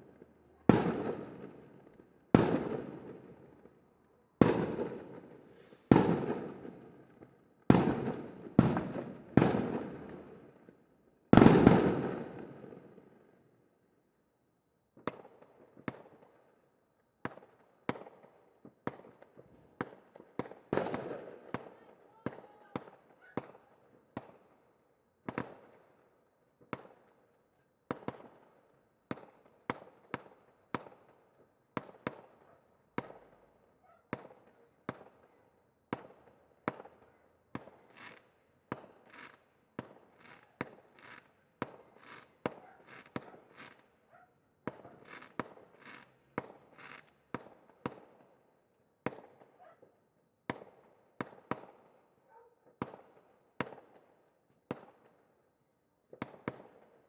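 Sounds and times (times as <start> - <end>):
fireworks banging: 37.6 - 43.8, 44.7 - 47.5
fireworks crackling: 40.1 - 43.8, 44.7 - 47.1.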